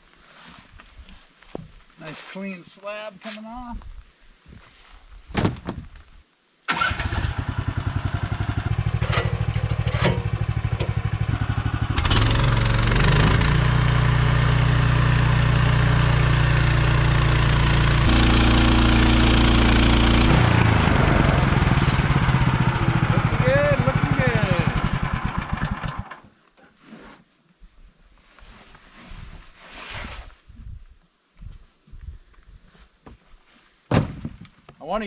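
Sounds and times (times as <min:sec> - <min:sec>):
sawmill gasoline engine: 0:06.7 - 0:26.2.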